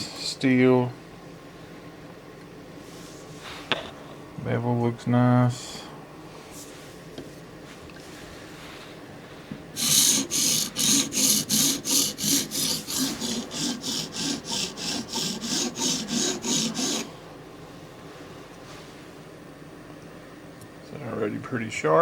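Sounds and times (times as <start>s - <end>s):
knife rasping on sharpening stone: 9.8s - 17.1s.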